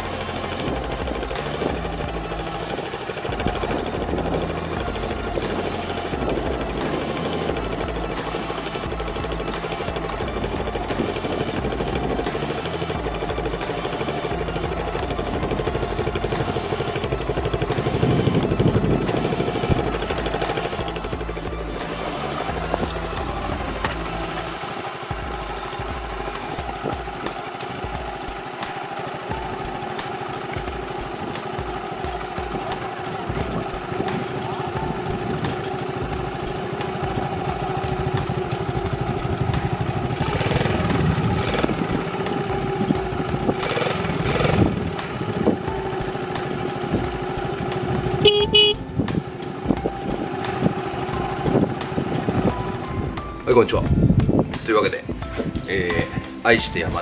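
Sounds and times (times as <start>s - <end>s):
motorcycle engine idling: 0.0s - 57.0s
horn beep: 48.2s - 48.9s.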